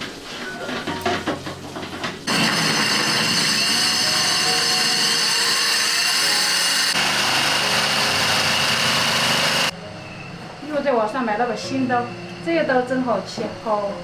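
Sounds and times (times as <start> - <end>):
electric drill whining: 2.3 - 9.7.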